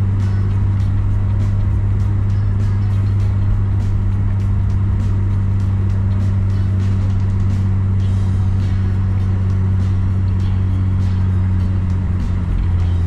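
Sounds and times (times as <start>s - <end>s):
car engine and tyre drone: 0.0s - 13.0s.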